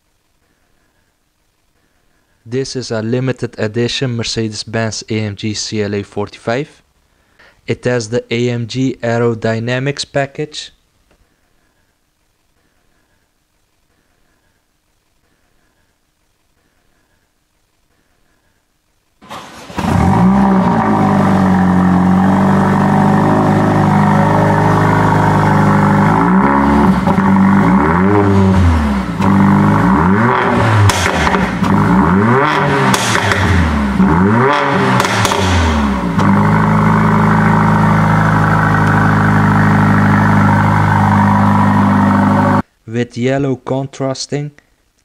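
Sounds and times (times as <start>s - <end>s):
car engine starting and idling: 19.2s - 42.6s
engine revving in short blips: 19.3s - 42.6s.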